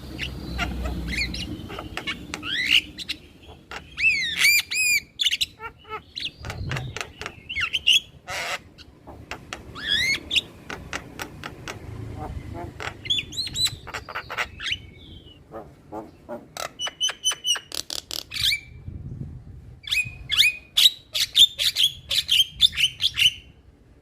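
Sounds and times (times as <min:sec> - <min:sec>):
myna calling: 0:00.2 - 0:17.4.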